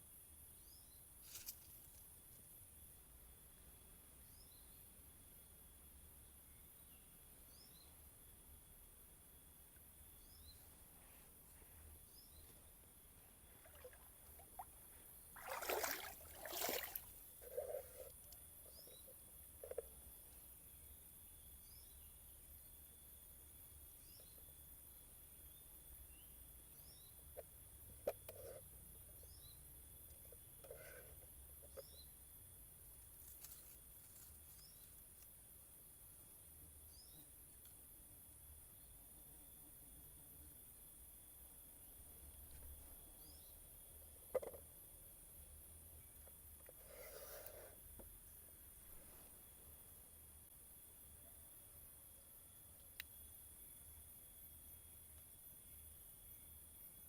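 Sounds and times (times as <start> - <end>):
high-pitched insect chorus: 0.0 - 27.4.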